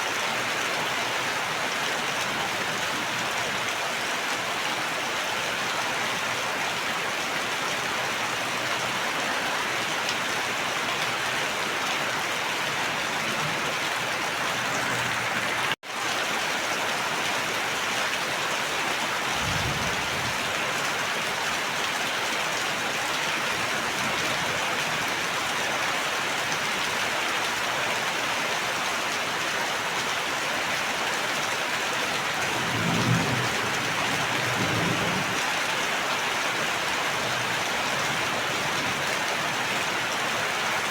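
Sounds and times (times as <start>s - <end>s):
heavy rain hissing: 18.6s - 21.9s
distant thunder rumbles: 19.2s - 20.8s.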